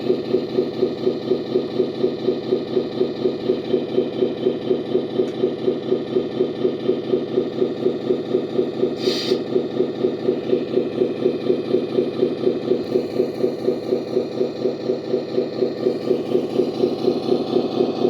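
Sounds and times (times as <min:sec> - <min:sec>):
simulated truck engine idling: 0:00.0 - 0:18.0
short hiss: 0:09.0 - 0:09.4.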